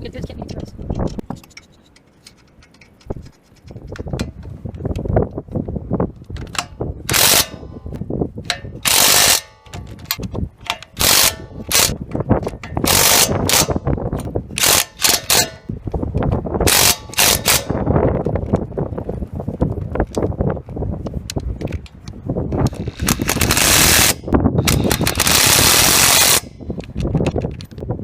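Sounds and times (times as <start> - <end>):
clatter of nuts and bolts: 0.2 - 4.5
impact wrench hammering: 6.5 - 13.8, 14.6 - 15.7, 16.7 - 17.8.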